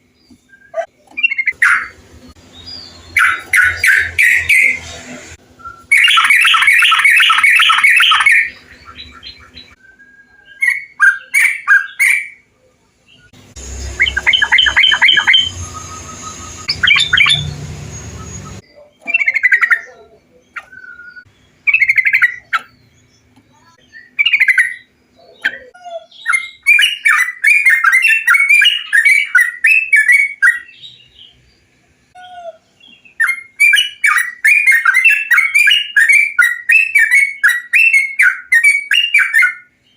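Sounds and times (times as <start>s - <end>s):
bulbuls singing: 0.0s - 39.9s
low rumbling background: 13.3s - 18.6s.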